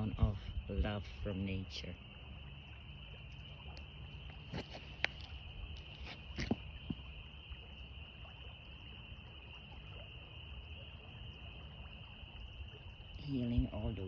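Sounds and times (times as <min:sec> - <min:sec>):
frogs trilling: 0:00.0 - 0:14.0.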